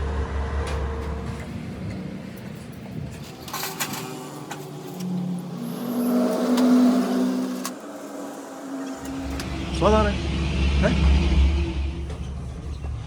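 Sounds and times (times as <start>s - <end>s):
vehicle engine running: 0.0s - 13.0s
metallic clanks: 0.6s - 9.8s.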